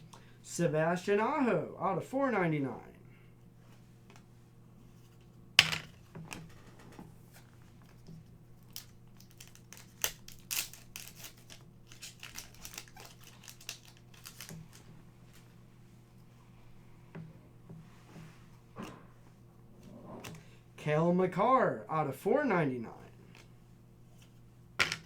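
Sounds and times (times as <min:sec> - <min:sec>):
cards shuffling and rustling: 0:07.3 - 0:15.5
foil wrapper tearing: 0:08.6 - 0:14.8
foil wrapper crinkling: 0:08.6 - 0:15.4.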